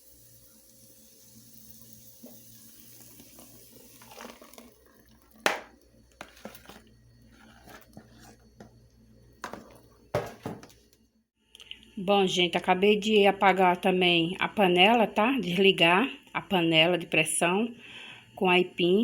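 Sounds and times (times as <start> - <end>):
broth pouring into a pot: 0.0 - 8.9.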